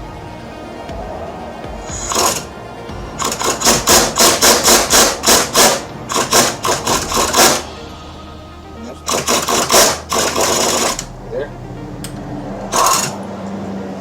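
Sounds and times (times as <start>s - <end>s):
tool striking metal: 1.9s - 2.5s, 3.2s - 7.9s, 9.0s - 11.1s, 12.7s - 13.2s.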